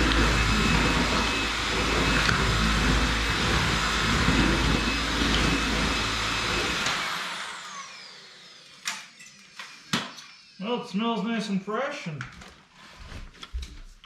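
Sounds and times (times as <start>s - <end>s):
cordless vacuum motor whine: 0.0s - 10.6s.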